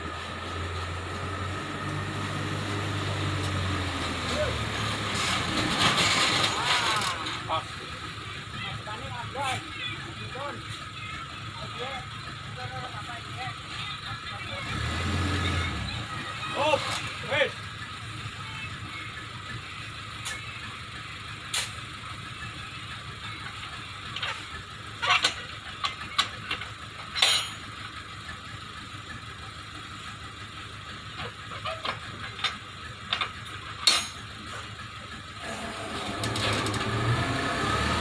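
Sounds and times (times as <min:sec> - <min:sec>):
engine running: 0:00.0 - 0:38.0
sharp knocks and clanks: 0:24.1 - 0:27.7.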